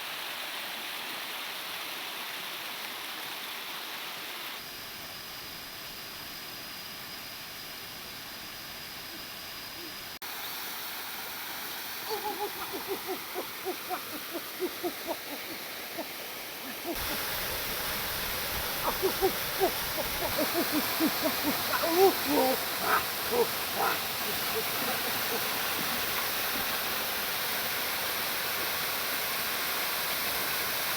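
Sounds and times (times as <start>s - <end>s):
steady rushing hiss: 0.0s - 30.9s
small animal high calls: 12.0s - 17.2s, 18.6s - 26.4s.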